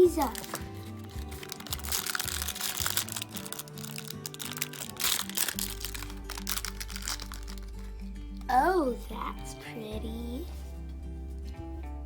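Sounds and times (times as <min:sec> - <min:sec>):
plastic wrapping crinkling: 0:00.0 - 0:08.6
background music with bass line: 0:00.0 - 0:12.0.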